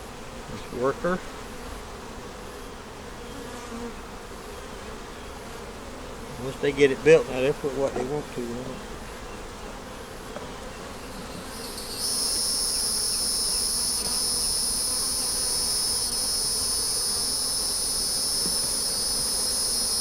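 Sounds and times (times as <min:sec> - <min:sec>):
honey bees buzzing: 0:00.0 - 0:20.0
high-pitched insect drone: 0:11.1 - 0:20.0.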